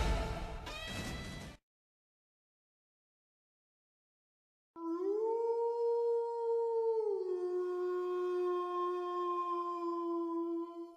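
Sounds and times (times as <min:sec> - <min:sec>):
dog howling: 0:04.8 - 0:10.9.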